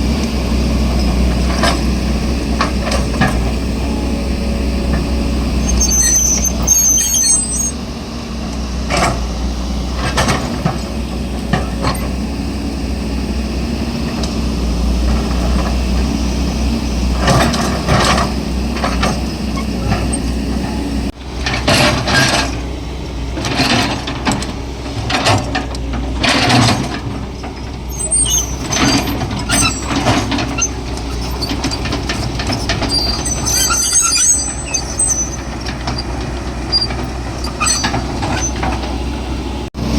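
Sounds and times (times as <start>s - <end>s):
excavator diesel engine: 0.0s - 39.9s
high squeaks: 5.6s - 7.8s, 27.9s - 38.7s
steel bucket scraping rubble: 26.2s - 38.8s.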